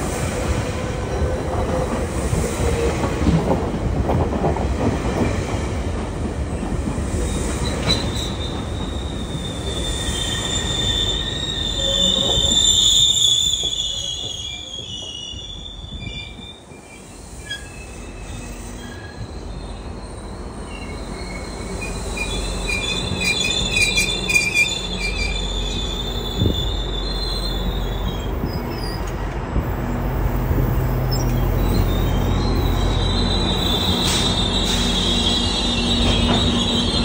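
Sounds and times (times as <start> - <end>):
low rumble of train: 0.0 - 37.0
wheels squealing on rails: 4.8 - 37.0.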